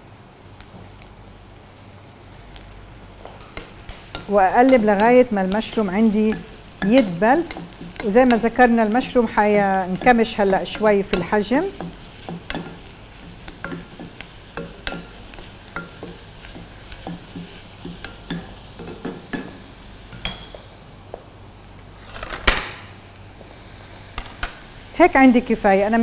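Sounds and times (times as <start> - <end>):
mushrooms sizzling in butter: 2.0 - 21.7, 22.9 - 26.0
wooden spatula tapping pan: 3.3 - 19.6.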